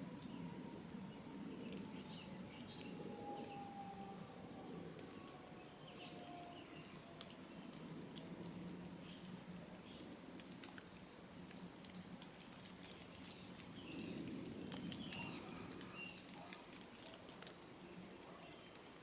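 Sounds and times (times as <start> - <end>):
light ticks and rustles: 0.1 - 3.0, 4.9 - 19.0
small birds chirping: 9.0 - 16.7.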